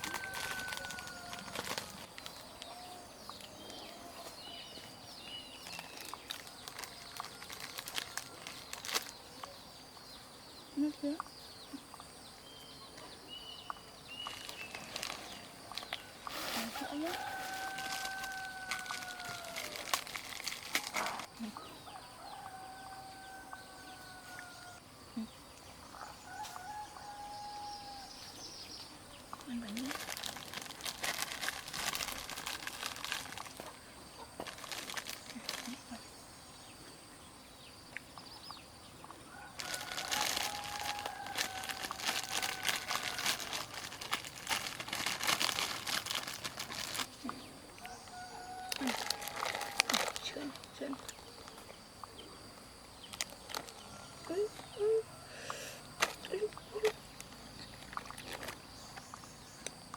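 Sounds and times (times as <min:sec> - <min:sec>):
roosters crowing: 0:00.0 - 0:01.9, 0:16.2 - 0:20.1, 0:20.8 - 0:24.9, 0:26.0 - 0:28.2, 0:39.3 - 0:44.1, 0:47.8 - 0:50.2.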